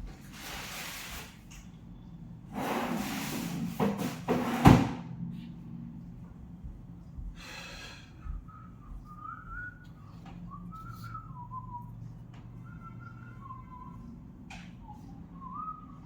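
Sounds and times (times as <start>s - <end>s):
person whistling a tune: 8.2s - 14.2s, 14.8s - 16.0s.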